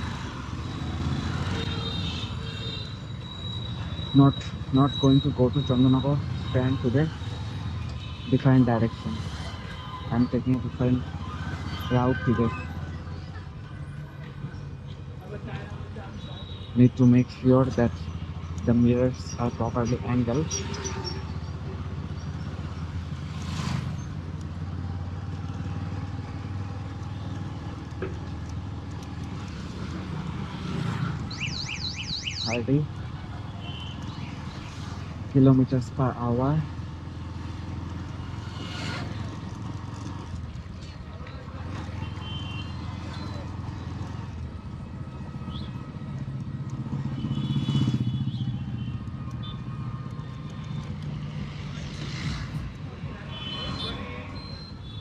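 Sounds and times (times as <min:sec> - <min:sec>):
motorcycle engine drone: 0:17.8 - 0:55.0
motorcycle engine running: 0:36.7 - 0:53.6.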